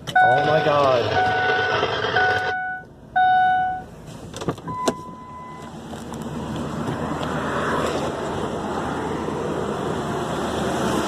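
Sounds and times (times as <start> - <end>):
car engine running: 0.0 - 4.7
loud beep: 0.1 - 3.9, 4.7 - 5.7.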